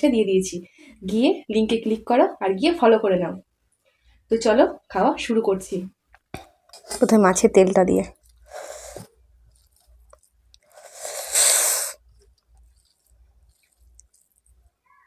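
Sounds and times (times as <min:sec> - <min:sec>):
person chewing: 0:08.1 - 0:15.0.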